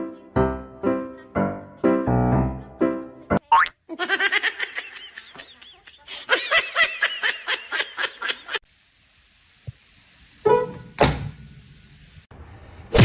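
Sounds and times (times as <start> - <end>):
high-pitched laughter: 3.9 - 8.6.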